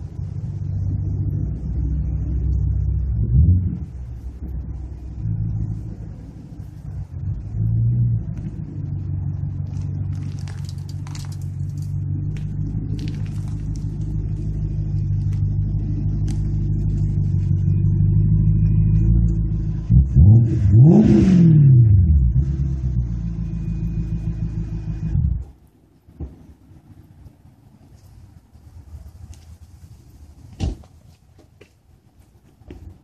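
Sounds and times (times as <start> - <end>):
car engine running and revving: 0.0 - 25.8.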